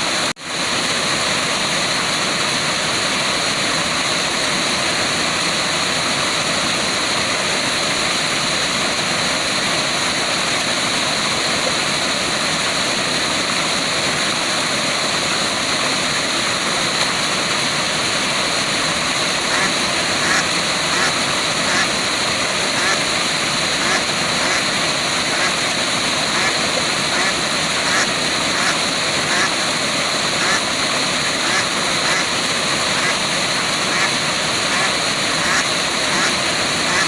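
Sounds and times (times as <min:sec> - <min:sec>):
waterfall roaring: 0:00.0 - 0:37.0.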